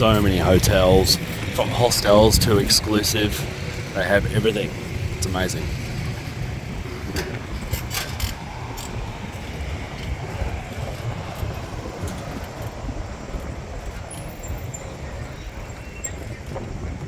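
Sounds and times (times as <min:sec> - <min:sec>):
bicycle riding rumble: 0:00.0 - 0:17.0
wind buffeting microphone: 0:00.0 - 0:17.0.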